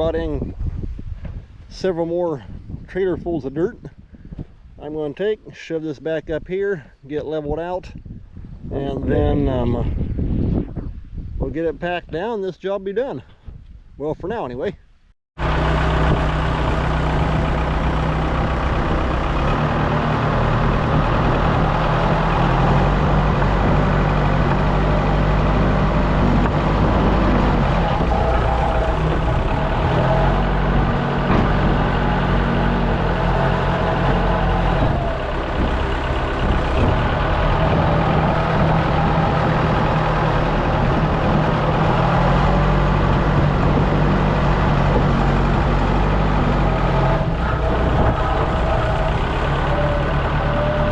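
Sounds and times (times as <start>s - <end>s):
loader diesel engine working: 15.4s - 50.9s.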